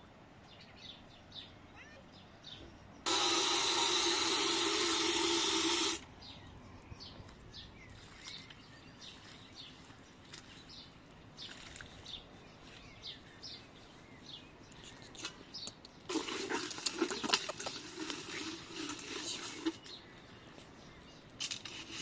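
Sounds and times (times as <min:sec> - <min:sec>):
small birds chirping: 0:00.0 - 0:04.0, 0:04.7 - 0:22.0
loud steady hiss with hum: 0:03.0 - 0:06.2.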